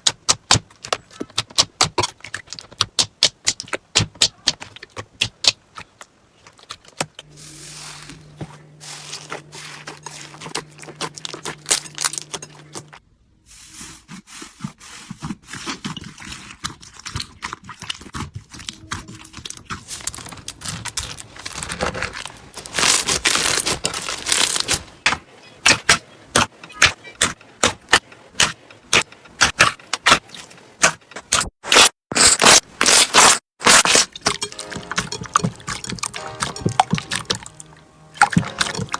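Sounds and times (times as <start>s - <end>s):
low steady hum: 7.2s - 13.5s
slime crackling and popping: 22.6s - 24.8s.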